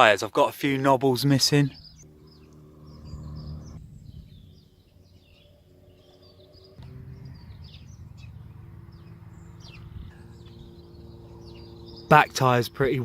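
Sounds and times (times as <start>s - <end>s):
small birds chirping: 0.6s - 13.0s
low steady hum: 1.4s - 13.0s.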